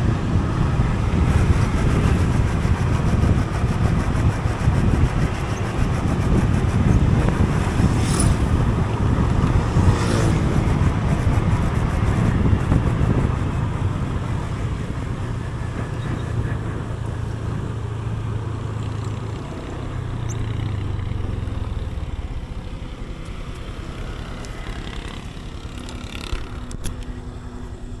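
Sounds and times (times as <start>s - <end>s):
wind rush: 0.0s - 18.7s
vehicle engine and road noise: 0.0s - 28.0s
short whooshes: 7.2s - 10.5s.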